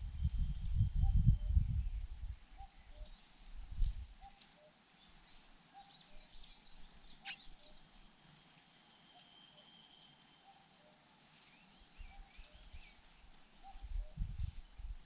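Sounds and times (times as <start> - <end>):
faint high chirps: 5.7 - 11.0.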